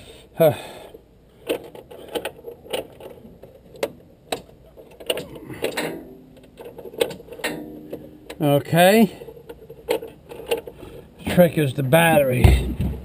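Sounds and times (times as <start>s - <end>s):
mechanical clicks and knocks: 1.4s - 8.4s, 9.3s - 10.8s.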